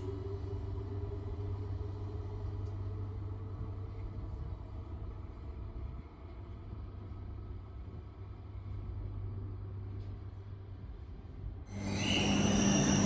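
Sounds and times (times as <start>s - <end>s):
train machinery rumble and hum: 0.0s - 13.0s.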